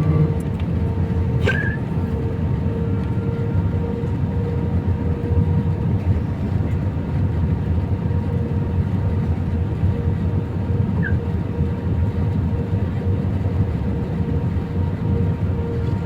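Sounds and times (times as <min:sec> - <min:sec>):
aircraft cabin engine drone: 0:00.0 - 0:16.0.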